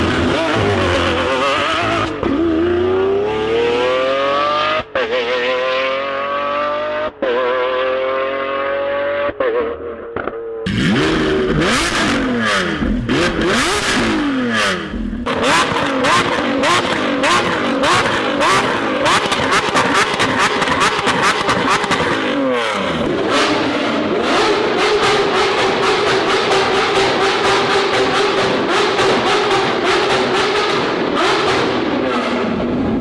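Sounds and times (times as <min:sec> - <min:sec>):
sports car engine revving: 0:00.0 - 0:09.4, 0:10.7 - 0:33.0
exhaust crackles and pops: 0:10.2 - 0:15.9.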